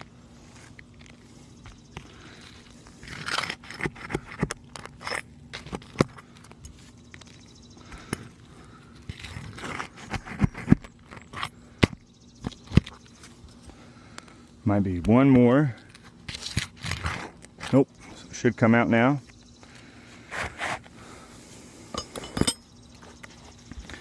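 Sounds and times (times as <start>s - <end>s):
roof shingles scraping and crackling: 0.3s - 11.6s.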